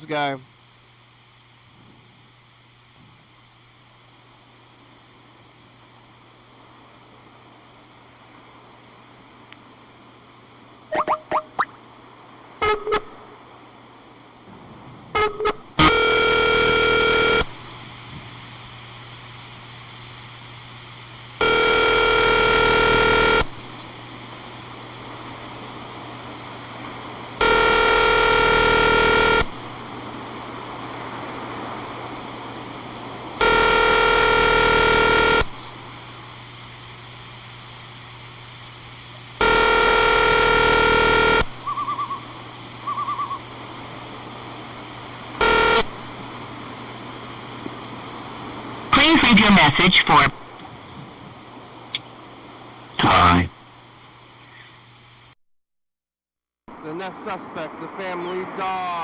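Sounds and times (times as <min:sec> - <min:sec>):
short beeps: 0:10.9 - 0:11.8, 0:12.6 - 0:13.2, 0:42.9 - 0:43.4
telephone ringback tone: 0:15.2 - 0:17.4, 0:21.4 - 0:23.4, 0:27.4 - 0:29.4, 0:33.4 - 0:35.4, 0:39.4 - 0:42.2, 0:42.9 - 0:43.4, 0:45.4 - 0:45.9.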